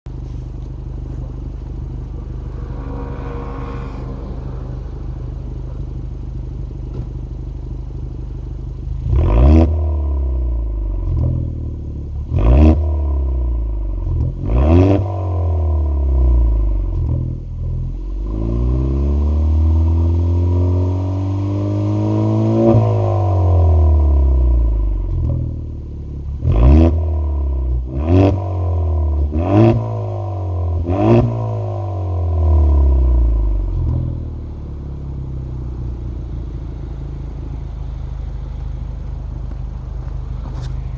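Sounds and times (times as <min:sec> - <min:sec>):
engine throttle blips: 0:00.1 - 0:27.6
car engine idling: 0:00.1 - 0:40.9.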